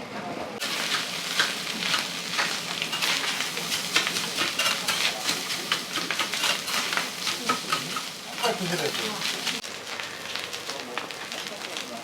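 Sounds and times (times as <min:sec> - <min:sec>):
metal spatulas scraping griddle: 0:00.6 - 0:09.6
food sizzling: 0:00.6 - 0:12.0.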